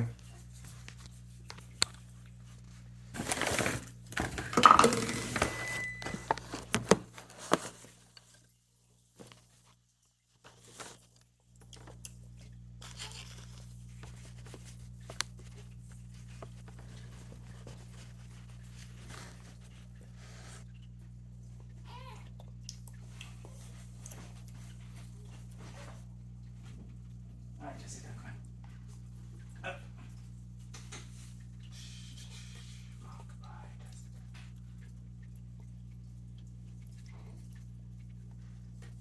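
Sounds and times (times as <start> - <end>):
rustling handling noise: 0.0 - 12.0, 12.8 - 21.2.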